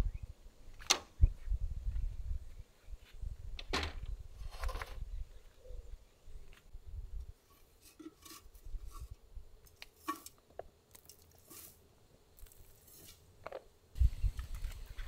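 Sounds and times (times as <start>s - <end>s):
trowel scooping soil: 9.8s - 11.8s, 12.4s - 13.3s.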